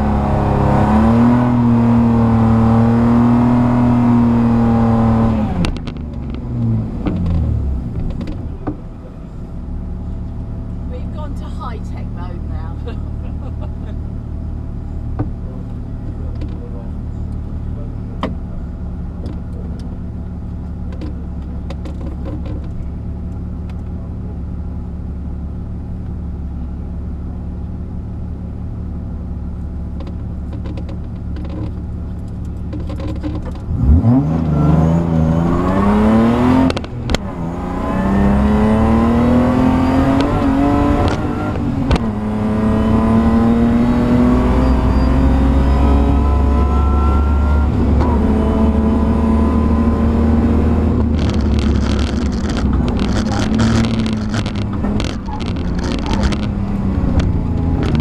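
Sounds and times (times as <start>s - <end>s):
race car engine revving: 0.0s - 8.7s, 32.4s - 58.0s
gear changes: 29.9s - 58.0s.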